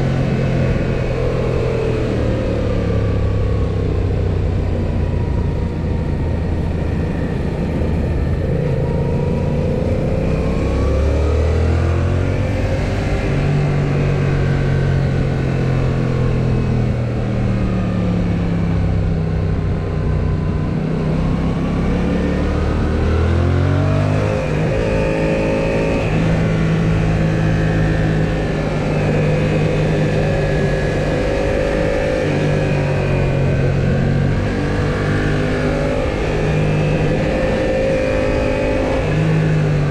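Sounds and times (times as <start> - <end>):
road and wind noise: 0.0 - 39.9
motorcycle engine running: 12.2 - 23.0.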